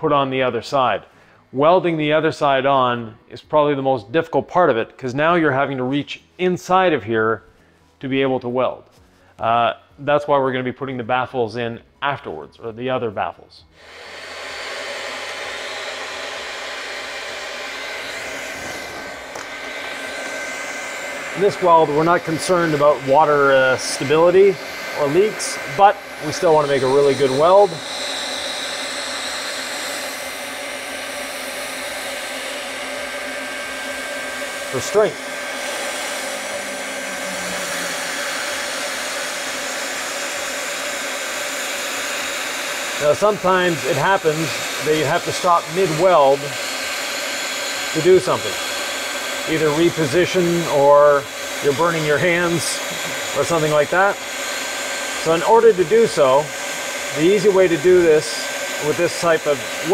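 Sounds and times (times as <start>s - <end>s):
hot-air welding gun hissing: 13.7s - 59.9s.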